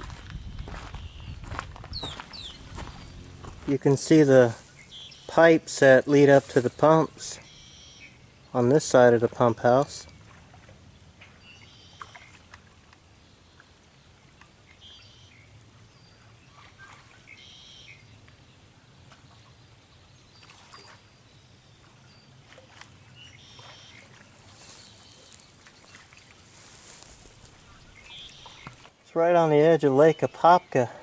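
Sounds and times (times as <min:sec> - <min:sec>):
short bird chirps: 0:02.0 - 0:03.2, 0:16.6 - 0:18.0, 0:27.5 - 0:28.9
high-pitched insect drone: 0:02.0 - 0:08.2, 0:25.1 - 0:28.9.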